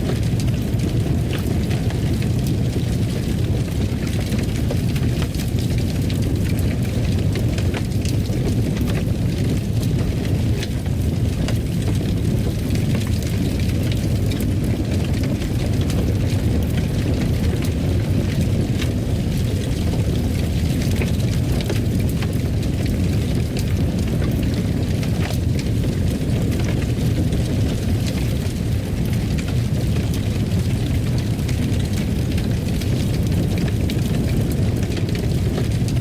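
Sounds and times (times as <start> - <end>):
fire roaring: 0.0 - 36.0
wood fire crackling and popping: 0.0 - 36.0.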